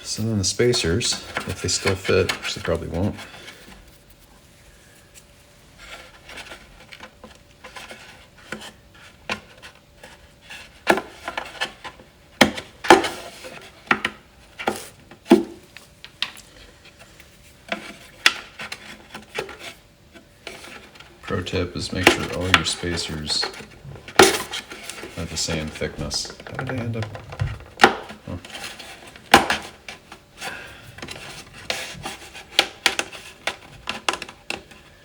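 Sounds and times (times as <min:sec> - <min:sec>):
wood rubbing scrapes: 0:00.0 - 0:05.1, 0:05.7 - 0:12.0, 0:16.5 - 0:34.8
wood-on-wood knocks and taps: 0:26.0 - 0:28.2.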